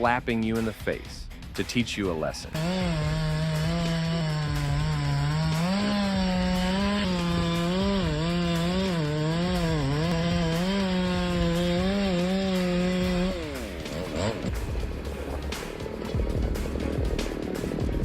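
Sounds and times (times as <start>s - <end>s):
chainsaw cutting at high revs: 2.6s - 16.0s.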